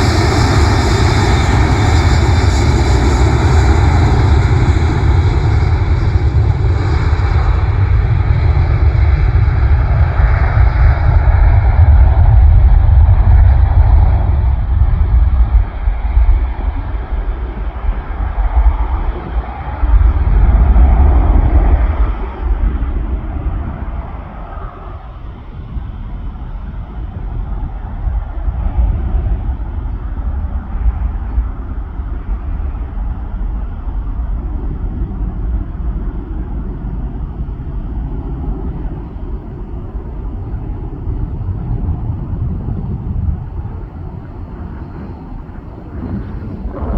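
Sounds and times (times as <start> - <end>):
aircraft engine roar: 0.0 - 46.9
wind buffeting microphone: 0.0 - 46.9.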